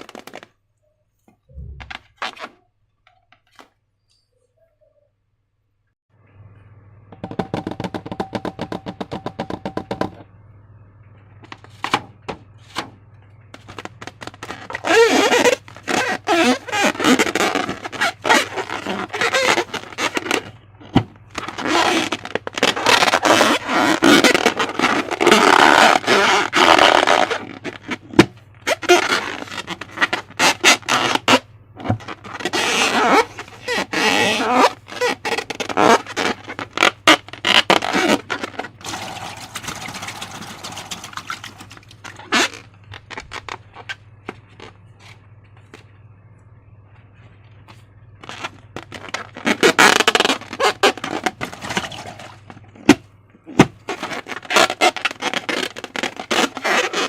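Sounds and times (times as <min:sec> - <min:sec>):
slime squelching by hand: 0:32.0 - 0:43.9.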